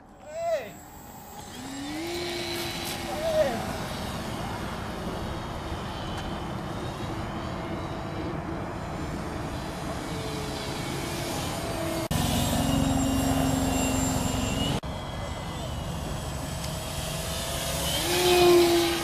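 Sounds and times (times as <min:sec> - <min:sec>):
model airplane motor drone: 0:00.0 - 0:19.0.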